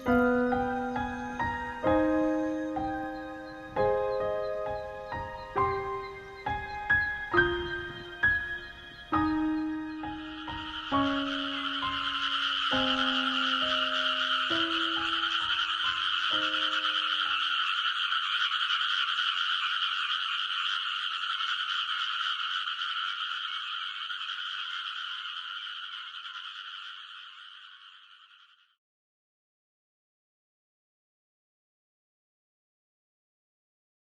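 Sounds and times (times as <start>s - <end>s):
sustained music notes: 0.0s - 17.5s
chorus of frogs croaking: 0.0s - 28.8s.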